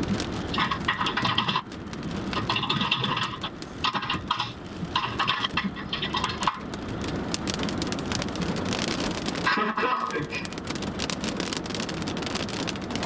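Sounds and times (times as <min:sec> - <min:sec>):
heavy rain hissing: 0:00.0 - 0:13.0
raindrops spattering: 0:00.0 - 0:13.0.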